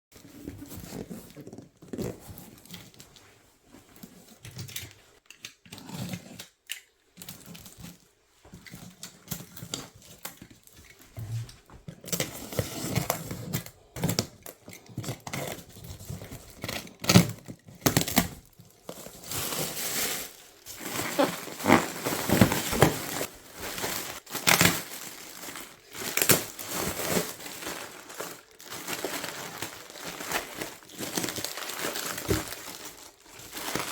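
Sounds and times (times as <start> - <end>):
packaging crinkling and tearing: 12.0 - 33.9.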